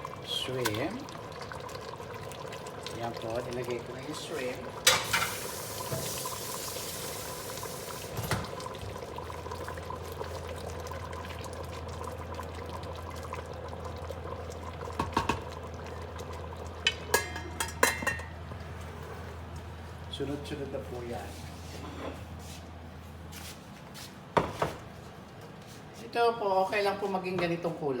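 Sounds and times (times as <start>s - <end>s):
curry bubbling in pot: 0.0s - 20.2s
utensil clinking against pot: 16.8s - 18.4s.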